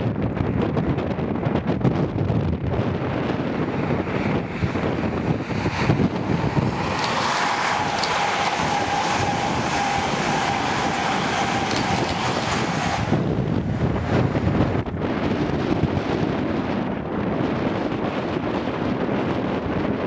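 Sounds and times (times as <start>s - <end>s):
express train passing: 2.1s - 17.3s
thin steady whine: 3.9s - 14.6s.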